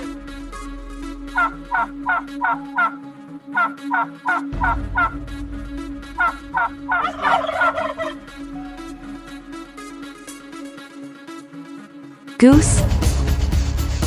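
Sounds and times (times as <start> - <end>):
turkey gobbling: 6.2 - 9.4.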